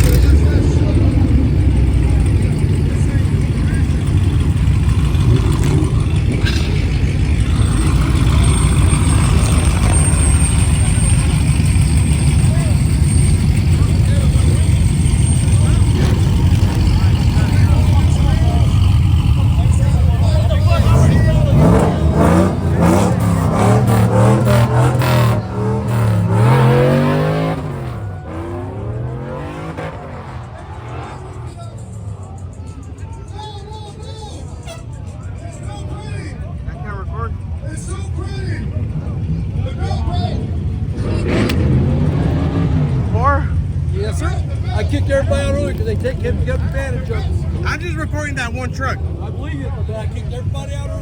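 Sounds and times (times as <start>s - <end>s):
vehicle engine rumbling: 0.0s - 51.0s.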